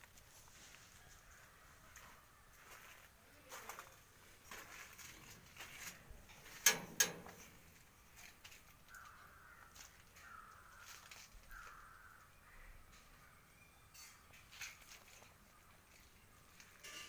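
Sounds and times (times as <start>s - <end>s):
faint caw-like animal calls: 0.8s - 3.0s, 8.8s - 13.7s.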